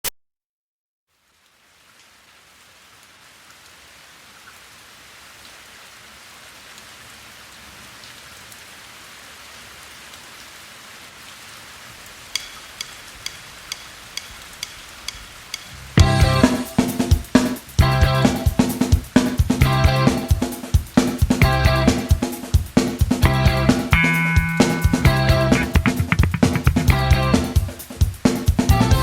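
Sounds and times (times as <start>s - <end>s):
steady rain falling: 1.1s - 29.0s
sharp evenly spaced clicks: 12.3s - 17.8s.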